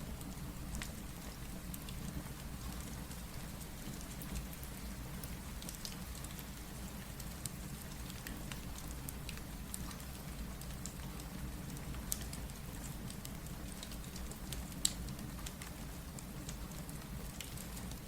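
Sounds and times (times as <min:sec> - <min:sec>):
steady rain: 0:00.0 - 0:18.0
wood fire crackling and popping: 0:03.8 - 0:18.0.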